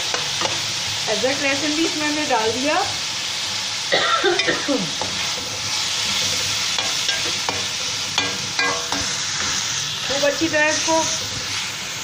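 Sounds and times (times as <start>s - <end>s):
meat sizzling in oil: 0.0s - 12.0s
utensil scraping and knocking pan: 5.0s - 9.6s.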